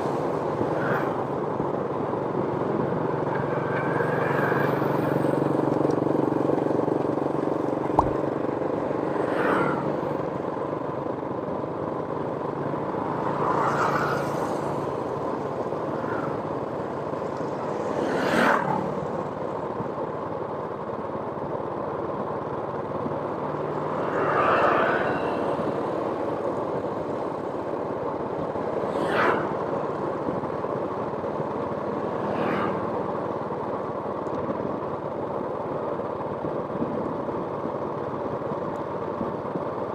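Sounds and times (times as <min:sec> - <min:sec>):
outdoor traffic noise: 0:00.0 - 0:39.9.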